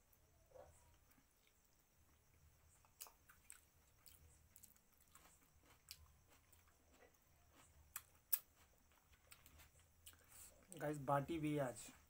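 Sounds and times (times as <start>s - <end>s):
wet chewing clicks: 2.8s - 10.4s.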